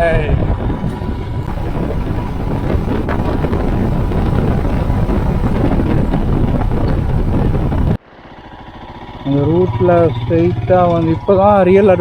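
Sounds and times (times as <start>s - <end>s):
wind buffeting microphone: 0.0s - 8.0s
motorcycle and road rumble: 0.0s - 12.0s.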